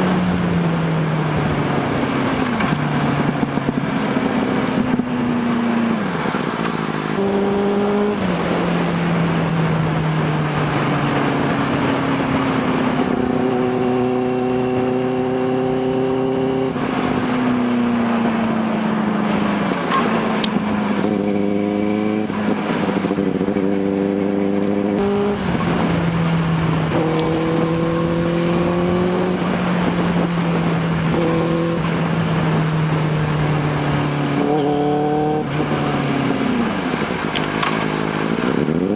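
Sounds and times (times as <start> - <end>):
motorcycle engine running: 0.0 - 6.0
wind noise: 0.0 - 38.9.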